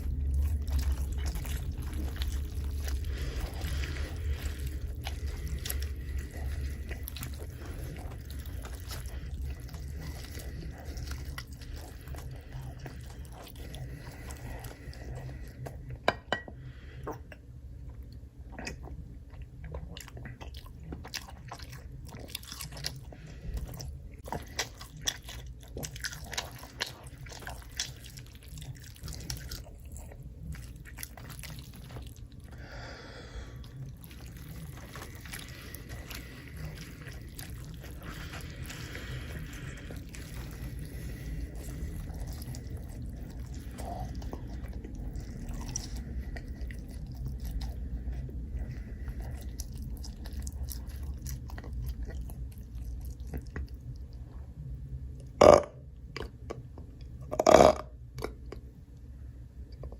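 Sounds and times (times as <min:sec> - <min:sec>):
slurping: 0:00.0 - 0:15.9, 0:18.4 - 0:54.3
chewing with wet mouth clicks: 0:00.0 - 0:16.0, 0:17.0 - 0:32.6, 0:33.6 - 0:59.9.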